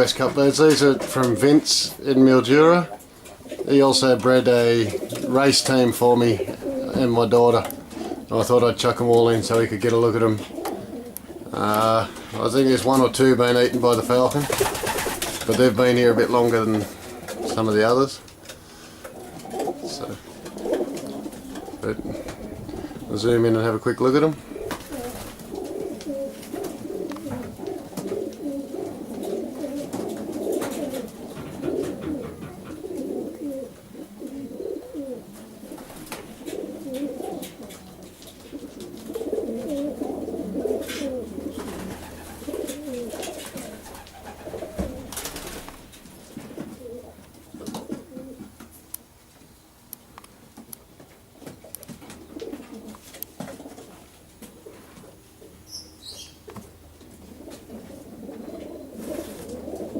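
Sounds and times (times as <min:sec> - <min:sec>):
pigeons cooing: 0:00.0 - 0:48.7, 0:51.4 - 0:59.9.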